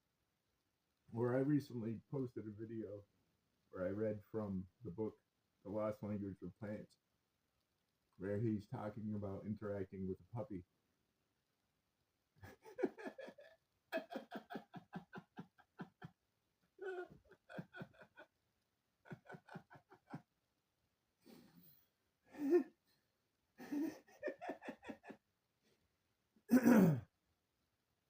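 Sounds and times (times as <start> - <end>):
man laughing: 12.4 - 16.2, 16.8 - 18.4, 19.0 - 20.3, 22.3 - 22.8, 23.6 - 25.2.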